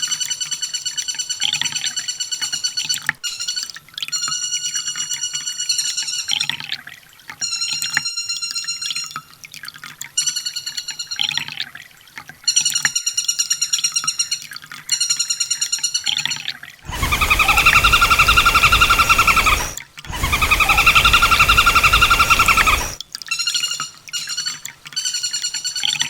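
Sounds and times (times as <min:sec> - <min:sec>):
bird trilling song: 0:16.9 - 0:23.0
hissy low steady bird trill: 0:16.9 - 0:23.0.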